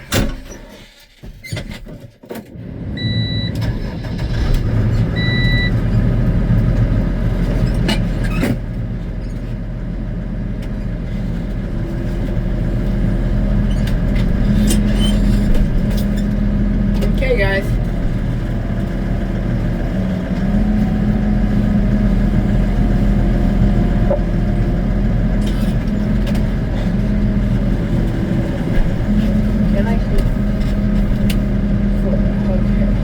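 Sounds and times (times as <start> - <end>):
short beeps: 3.0 - 3.6, 5.2 - 5.7
tractor engine running: 3.0 - 33.0.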